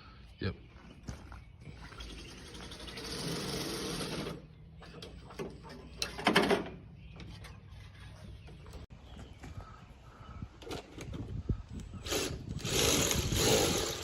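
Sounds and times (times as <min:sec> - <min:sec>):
power shears cutting roofing: 0:12.0 - 0:14.0.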